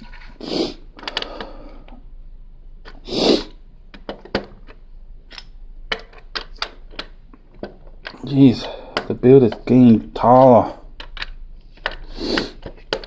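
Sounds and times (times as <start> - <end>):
plastic pieces clicking: 10.9 - 13.0.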